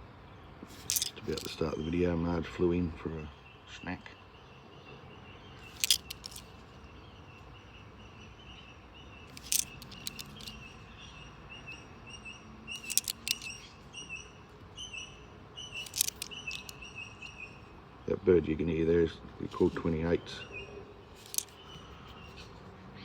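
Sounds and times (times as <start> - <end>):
sharp clicks: 9.3 - 10.6, 12.8 - 13.6, 15.8 - 16.8.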